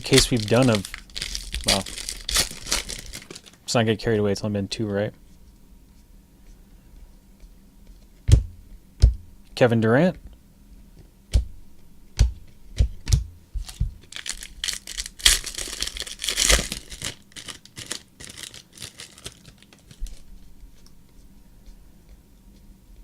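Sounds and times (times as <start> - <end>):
cards being shuffled: 0.0 - 3.6, 13.0 - 21.8
foil wrapper tearing and crinkling: 0.0 - 3.6, 13.6 - 20.3.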